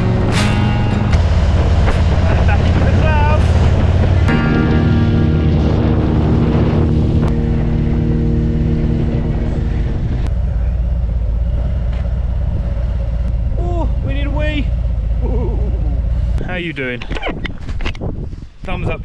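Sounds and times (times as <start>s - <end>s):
wind on microphone: 0.0s - 10.3s, 15.6s - 19.0s
steady engine tone: 0.0s - 17.0s
motorcycle engine rumble: 0.0s - 18.4s.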